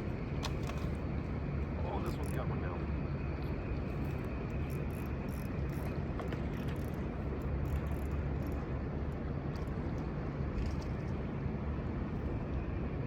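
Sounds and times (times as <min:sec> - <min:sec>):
fishing reel clicking: 0:04.7 - 0:05.9.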